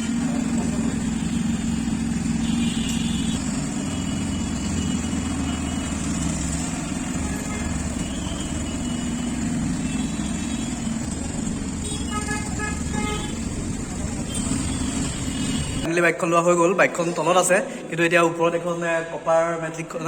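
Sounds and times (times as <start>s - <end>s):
vehicle engine running: 0.0s - 15.9s.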